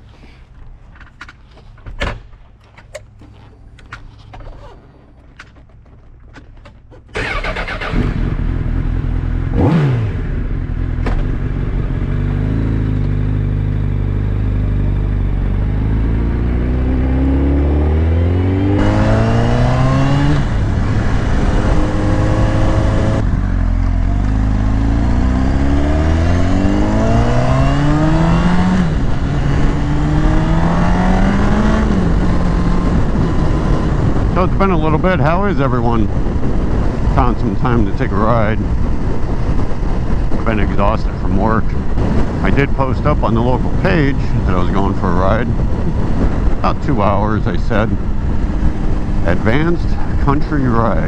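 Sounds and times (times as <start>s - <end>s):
motorcycle engine accelerating hard: 7.1s - 51.0s.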